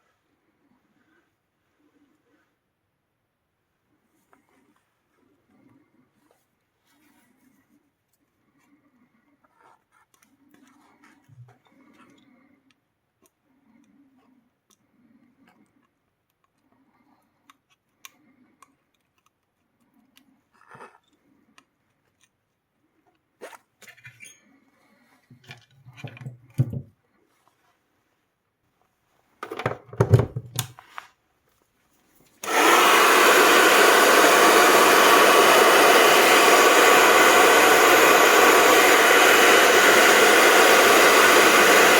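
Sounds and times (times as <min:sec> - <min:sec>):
hot-air tool blowing hiss: 0:32.4 - 0:41.9.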